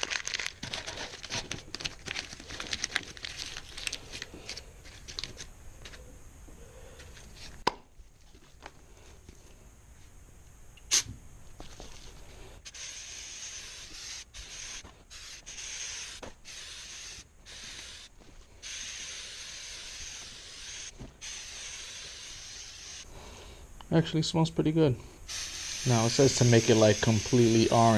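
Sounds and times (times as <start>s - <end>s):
aerosol can spraying: 12.6s - 23.1s, 25.3s - 27.9s.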